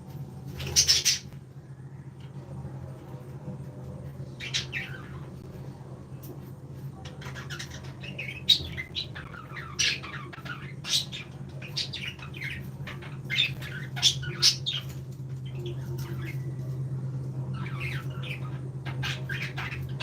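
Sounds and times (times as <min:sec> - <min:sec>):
steady low hum: 0:00.0 - 0:20.0
parrots chirping and squawking: 0:00.5 - 0:01.4, 0:04.3 - 0:05.4, 0:07.0 - 0:16.8, 0:17.5 - 0:20.0.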